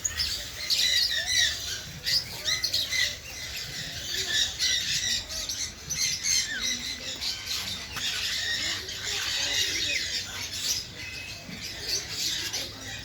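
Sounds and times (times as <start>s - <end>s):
birds squawking: 0.0s - 13.0s.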